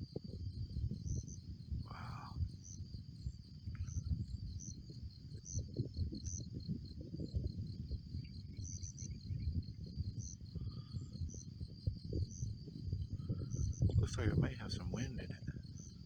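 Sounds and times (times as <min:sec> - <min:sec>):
crickets trilling: 0:00.0 - 0:16.0
insect chirping: 0:00.0 - 0:16.0
uneven low rumble: 0:09.1 - 0:15.8.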